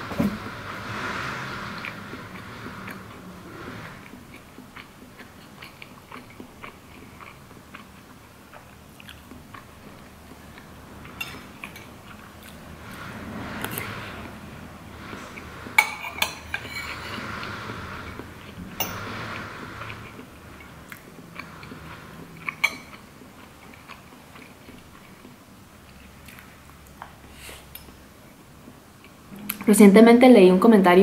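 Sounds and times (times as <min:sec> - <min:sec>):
close-up chewing: 0:03.8 - 0:12.7, 0:19.3 - 0:29.6.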